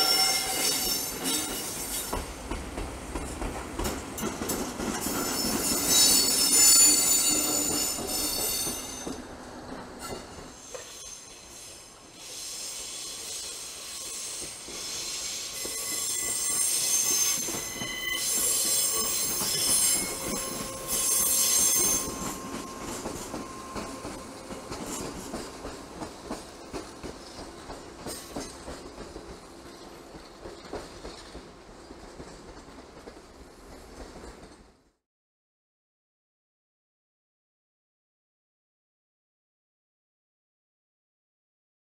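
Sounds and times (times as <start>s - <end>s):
train wheels squealing: 0.0s - 2.3s, 5.0s - 9.2s, 10.0s - 26.1s.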